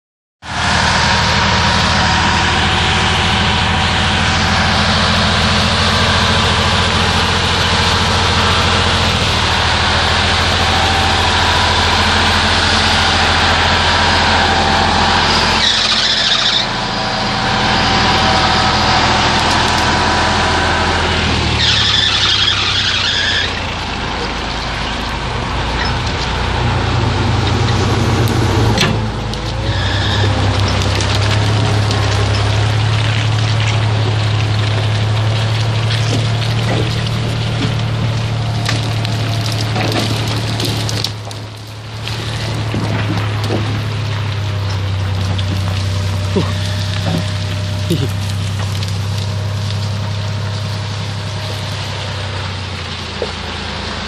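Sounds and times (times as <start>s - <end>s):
truck engine running: 0.4s - 54.0s.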